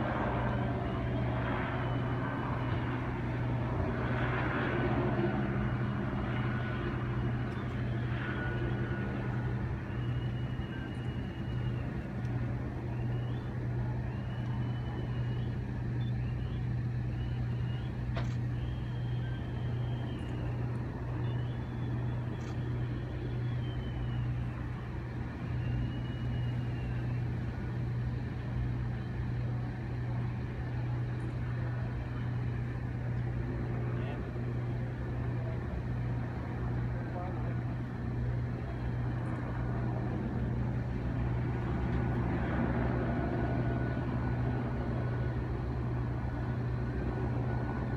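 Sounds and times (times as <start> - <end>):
low engine drone: 0.0 - 47.9.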